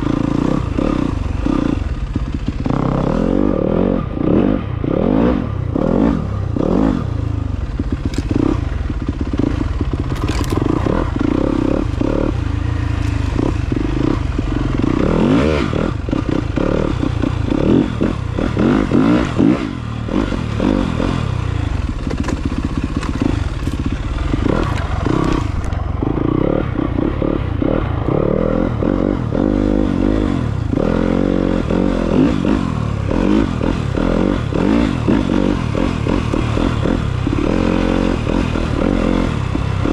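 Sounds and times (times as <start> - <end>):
dirt bike engine revving: 0.0 - 39.9
rattling: 10.0 - 11.1, 21.9 - 25.8.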